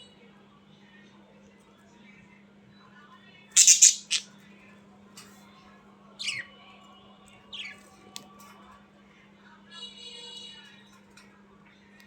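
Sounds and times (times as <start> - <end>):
budgerigar chirps: 3.6 - 4.3
budgerigar squawk: 3.6 - 4.3.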